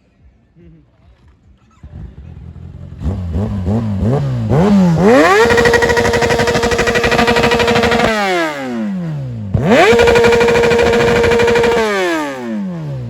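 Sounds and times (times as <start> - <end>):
motorcycle engine revving: 1.4 - 13.0.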